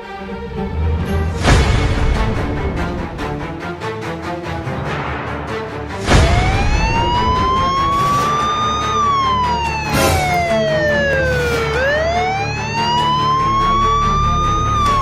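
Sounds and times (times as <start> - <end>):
police siren wailing: 6.2 - 15.0.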